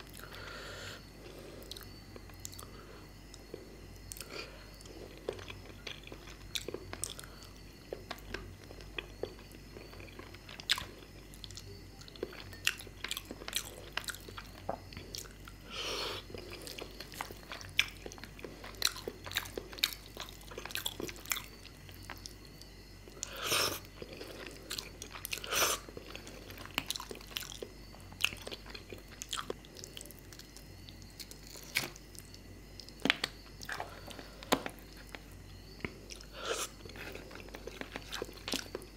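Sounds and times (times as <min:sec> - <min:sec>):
wet chewing and mouth smacks: 0:16.2 - 0:38.9.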